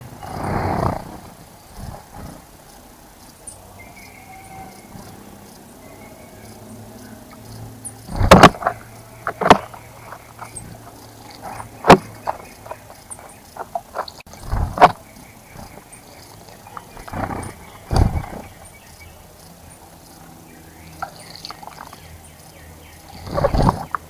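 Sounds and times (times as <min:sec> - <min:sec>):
faint high bird chirps: 0:01.6 - 0:24.0
bird splashing in water: 0:08.1 - 0:18.6.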